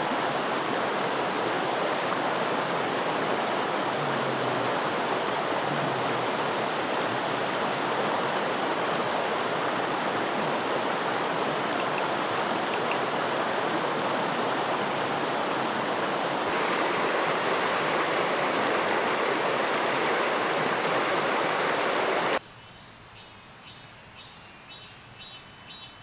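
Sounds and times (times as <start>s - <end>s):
flowing creek: 0.0s - 22.4s
insects chirping: 7.7s - 22.4s.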